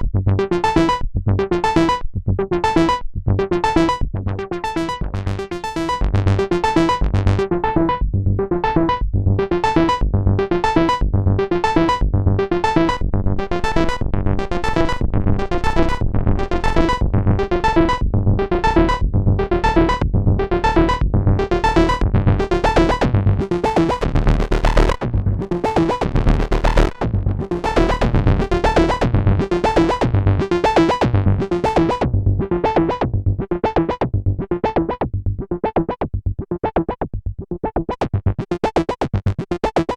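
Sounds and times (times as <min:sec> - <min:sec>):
synthesizer bass sequence: 0:00.0 - 0:36.9, 0:38.0 - 0:39.9.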